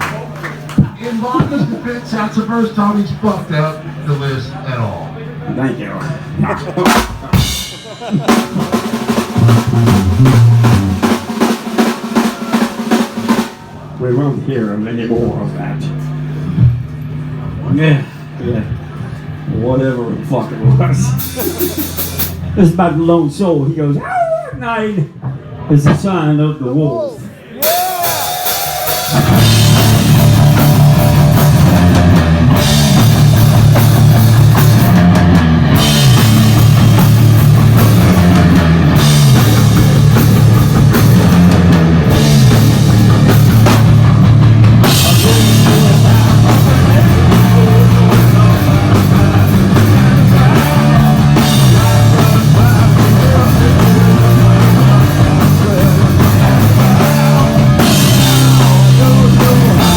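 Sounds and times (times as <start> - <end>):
metal band playing: 6.4 - 14.0, 20.6 - 23.2, 27.6 - 59.9
distorted guitar riff: 6.8 - 13.8, 27.9 - 59.9.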